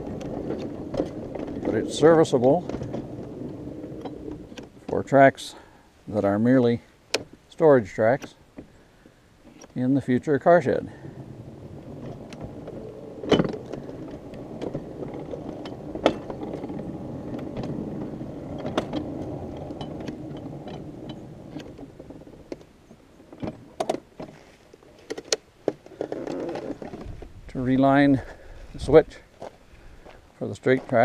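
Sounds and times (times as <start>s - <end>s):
small car wheels rumbling on track: 0.0s - 5.6s, 10.0s - 27.3s
wheel clicks on rail joints: 0.0s - 8.8s, 9.4s - 28.2s
metal clicks and knocks: 11.8s - 24.4s.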